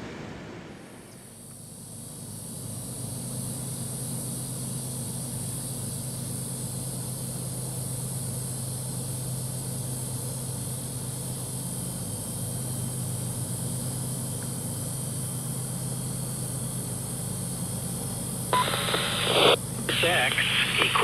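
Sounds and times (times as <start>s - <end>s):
constant high hiss: 18.3s - 21.0s.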